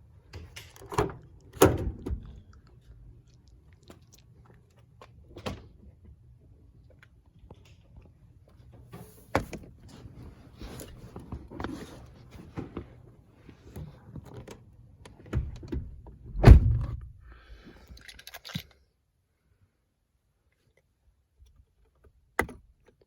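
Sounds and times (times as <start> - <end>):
truck door shutting: 16.3 - 17.1.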